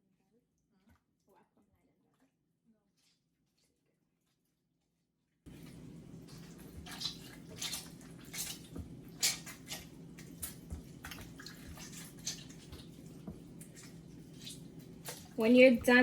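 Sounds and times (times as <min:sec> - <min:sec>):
water splashing and dripping: 0:05.5 - 0:16.0.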